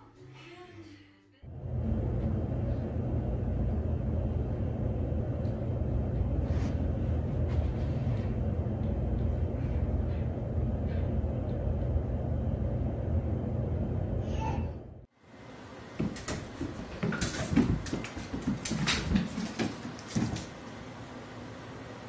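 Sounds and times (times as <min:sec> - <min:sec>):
steady low rumble: 0:01.5 - 0:15.1.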